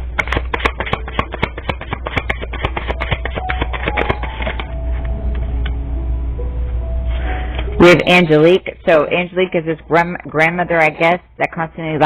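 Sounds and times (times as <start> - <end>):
cards being shuffled by hand: 0.0 - 4.7.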